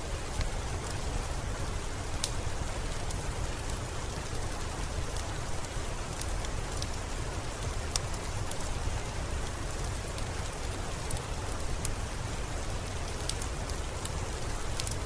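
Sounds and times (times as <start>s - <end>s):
steady rainfall: 0.0s - 15.0s.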